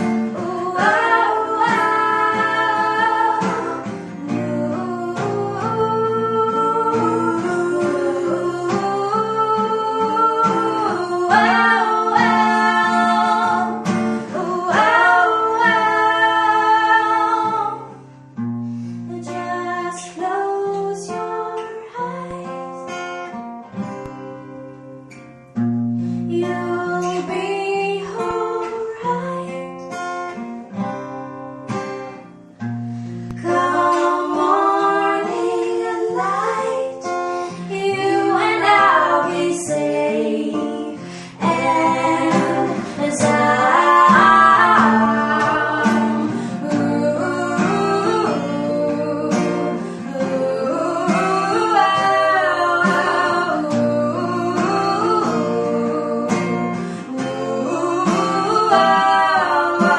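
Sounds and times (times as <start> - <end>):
acoustic guitar chords: 0.0 - 59.9
person singing slow melody: 33.4 - 59.9.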